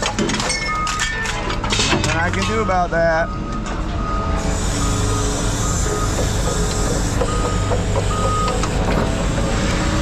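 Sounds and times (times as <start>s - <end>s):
heavy diesel machine running: 0.0s - 10.0s
backup alarm beeping: 2.6s - 9.7s.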